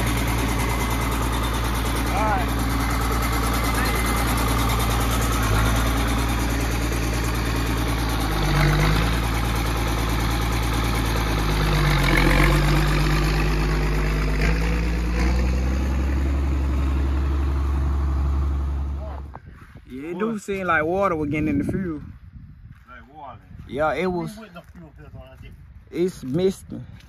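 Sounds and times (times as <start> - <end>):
tractor engine running: 0.0 - 19.4.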